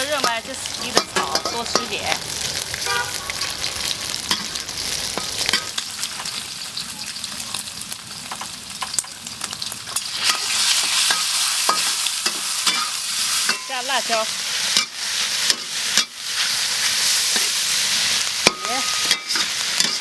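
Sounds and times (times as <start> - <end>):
meat sizzling in a pan: 0.0 - 20.0
spatula scraping a pan: 10.1 - 13.8, 14.6 - 20.0.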